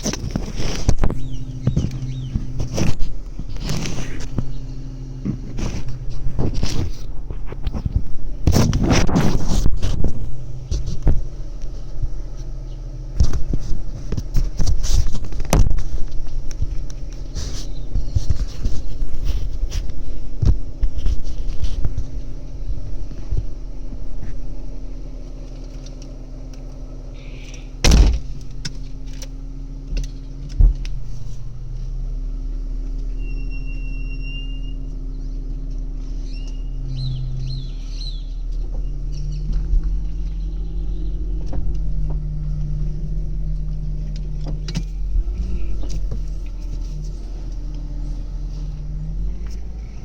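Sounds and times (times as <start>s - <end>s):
car engine while driving: 0.0s - 50.0s
sharp thump: 27.8s - 28.4s.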